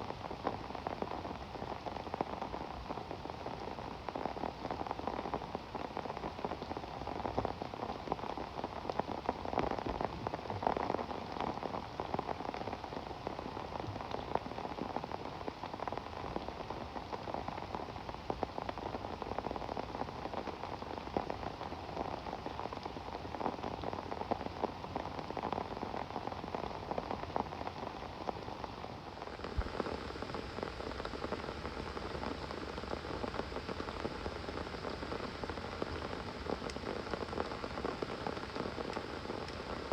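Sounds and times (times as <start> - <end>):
raindrops striking close by: 0.0 - 39.9
steady rain falling: 0.0 - 39.9.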